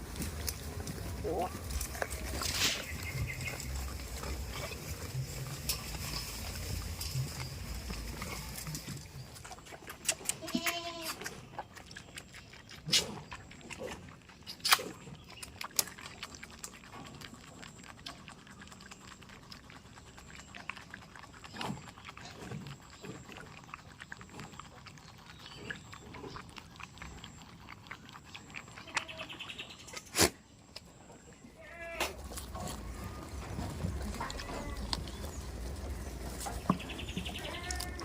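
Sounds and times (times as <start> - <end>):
goat high-pitched call: 10.2 - 11.2, 37.3 - 38.0.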